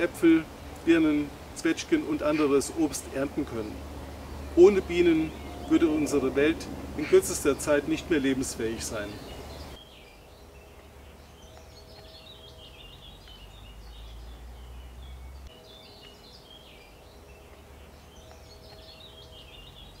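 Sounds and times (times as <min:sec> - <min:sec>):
faint steady hum: 0:00.0 - 0:13.5
songbird chirping: 0:00.0 - 0:20.0
low rumble: 0:03.7 - 0:08.3.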